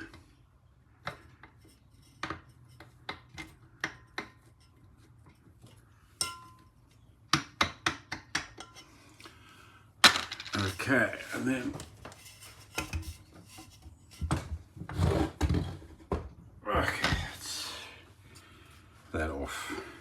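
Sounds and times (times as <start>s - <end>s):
metallic ring: 6.2s - 6.7s
metal parts clicking and clinking: 10.0s - 10.9s.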